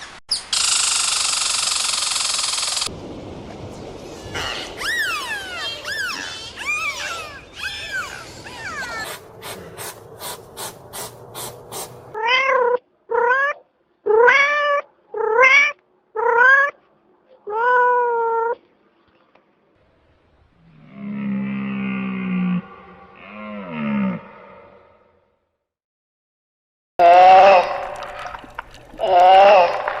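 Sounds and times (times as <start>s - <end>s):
high arching squeals: 4.0s - 12.1s.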